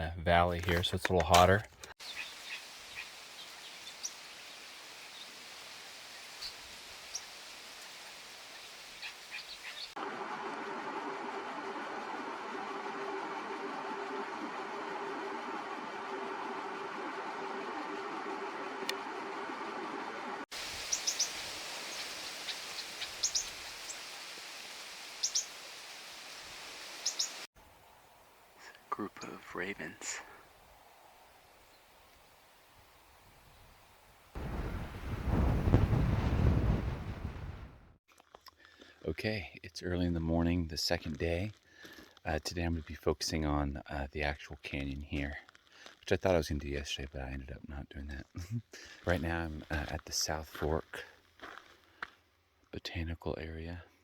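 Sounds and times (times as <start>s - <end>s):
small bird chirping: 2.0s - 5.4s, 8.5s - 10.0s, 20.8s - 24.2s, 25.1s - 25.6s, 27.0s - 27.5s
outdoor hiss: 2.0s - 10.0s, 20.5s - 37.5s
low hum: 10.0s - 20.5s
high bird chirps: 20.8s - 24.1s, 25.2s - 25.6s, 27.0s - 27.4s.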